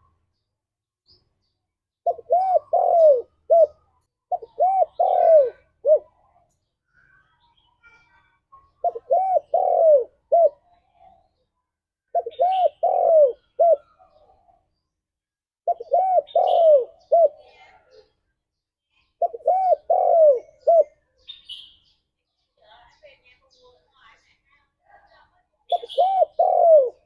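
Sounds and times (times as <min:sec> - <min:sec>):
small bird chirping: 0:00.0 - 0:27.0
dove cooing: 0:02.0 - 0:06.4, 0:08.7 - 0:11.1, 0:12.1 - 0:14.6, 0:15.6 - 0:18.0, 0:19.2 - 0:21.0, 0:25.7 - 0:27.0.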